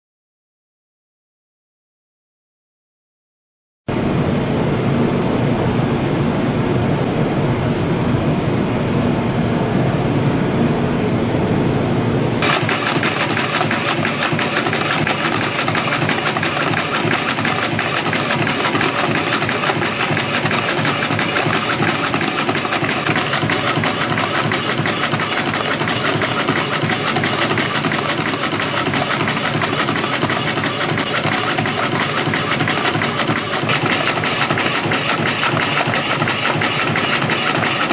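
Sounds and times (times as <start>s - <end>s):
spring coiling machine clattering: 12.4s - 37.9s.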